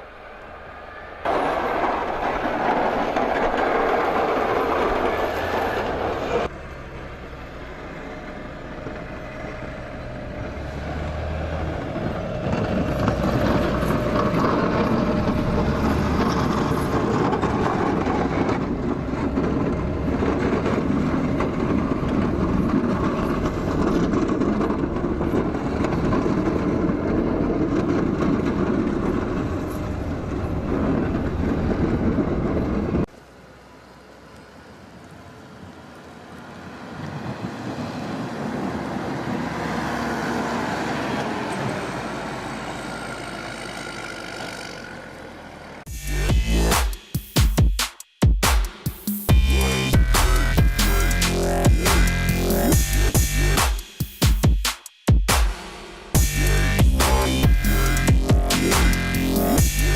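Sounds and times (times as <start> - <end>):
heavy machinery rumbling: 1.2 - 33.1, 49.3 - 53.6, 55.7 - 59.9.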